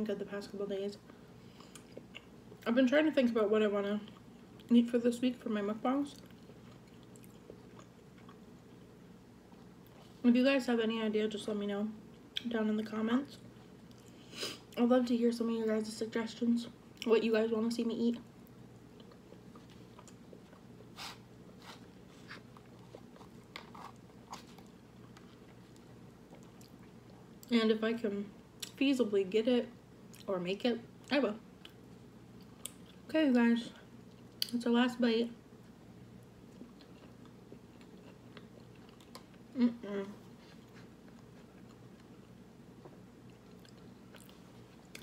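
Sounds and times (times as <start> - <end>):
faint low hum: 0.0 - 45.0
chewing: 6.1 - 8.9, 18.9 - 27.5, 36.5 - 39.4, 40.1 - 45.0
person humming: 39.6 - 40.2.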